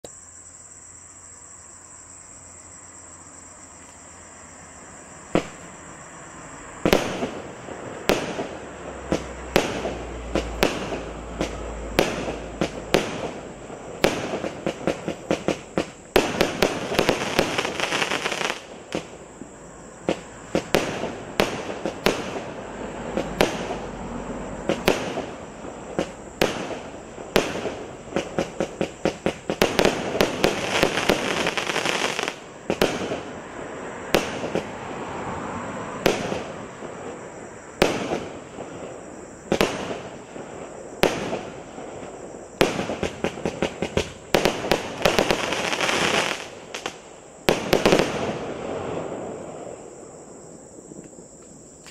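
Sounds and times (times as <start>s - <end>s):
fireworks crackle: 5.3s - 5.8s, 6.8s - 19.5s, 20.1s - 24.0s, 24.6s - 34.8s, 36.0s - 50.2s
fireworks cake bangs: 5.4s - 5.7s, 6.8s - 19.2s, 20.0s - 23.9s, 24.6s - 33.4s, 37.8s - 38.9s, 39.5s - 41.9s, 42.5s - 49.3s.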